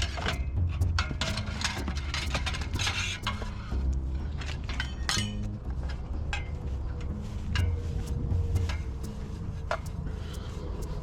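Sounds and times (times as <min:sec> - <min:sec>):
steady low rumble: 0:00.0 - 0:11.0
hard objects clinking and clanking: 0:04.4 - 0:05.5.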